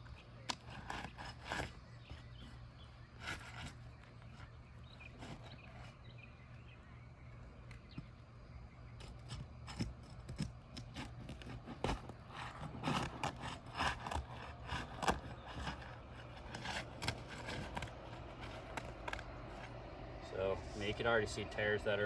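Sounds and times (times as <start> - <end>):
roof shingles scraping and crackling: 9.2 - 19.8.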